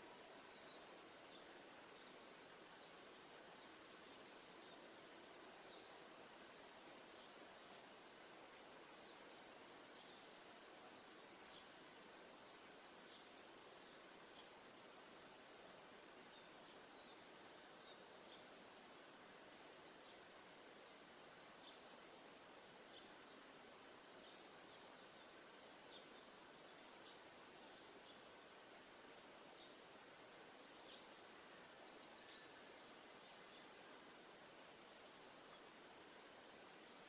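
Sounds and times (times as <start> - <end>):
steady background hiss: 0.0 - 37.0
small birds chirping: 15.5 - 37.0.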